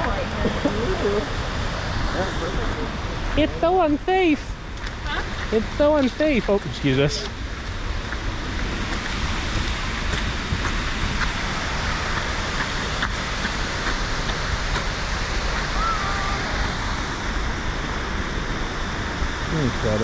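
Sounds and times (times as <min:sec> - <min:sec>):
waterfall rushing: 0:05.1 - 0:20.0.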